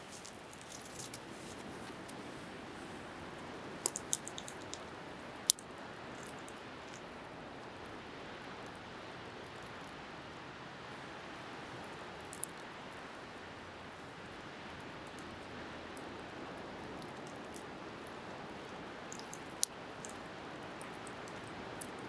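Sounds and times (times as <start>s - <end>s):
bonfire crackling: 0.0s - 7.1s, 16.2s - 22.0s
wind: 0.0s - 22.0s
fire popping: 3.8s - 4.9s.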